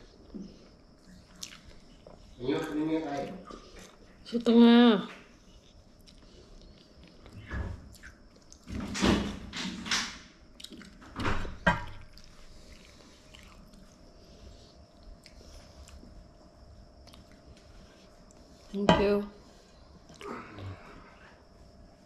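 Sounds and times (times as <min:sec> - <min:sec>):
steady hum: 0:00.0 - 0:22.0
crunching and chewing crispy food: 0:00.6 - 0:04.0, 0:05.5 - 0:08.7, 0:10.5 - 0:11.2, 0:11.9 - 0:14.2, 0:16.9 - 0:17.6.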